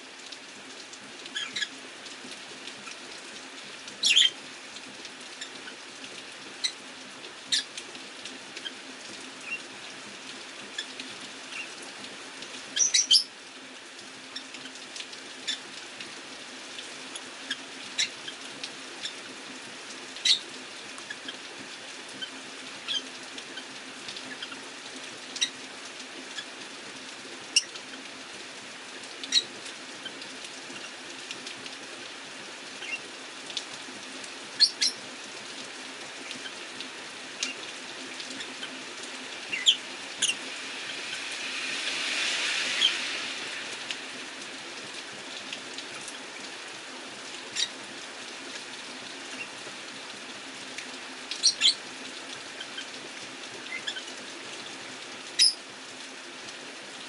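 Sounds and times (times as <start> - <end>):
rain hiss: 0.0 - 57.0
vehicle passing on wet street: 37.1 - 47.0.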